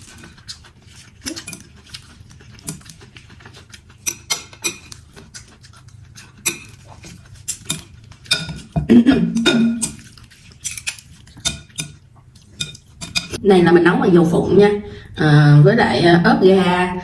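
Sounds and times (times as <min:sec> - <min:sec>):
eating sound: 0:00.0 - 0:13.4
utensils clicking against bowl: 0:01.2 - 0:03.0, 0:04.0 - 0:13.4.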